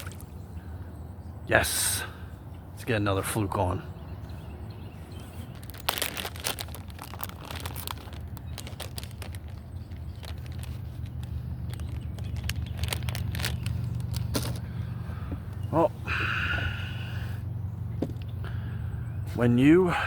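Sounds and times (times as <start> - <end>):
plastic bag crinkling: 5.5 - 14.7.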